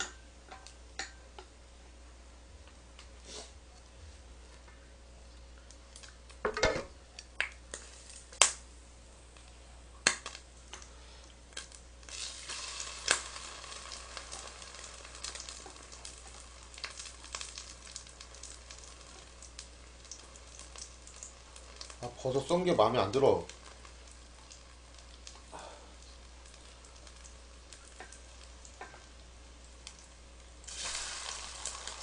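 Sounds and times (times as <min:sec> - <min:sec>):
mushrooms sizzling in hot oil: 0:07.4 - 0:08.7, 0:11.5 - 0:32.0.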